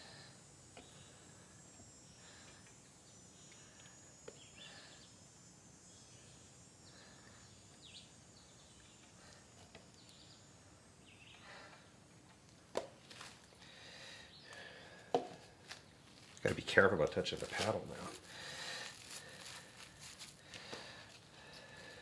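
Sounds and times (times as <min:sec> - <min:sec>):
faint high chirps: 0:00.6 - 0:12.1
light rustling and handling: 0:17.3 - 0:21.2.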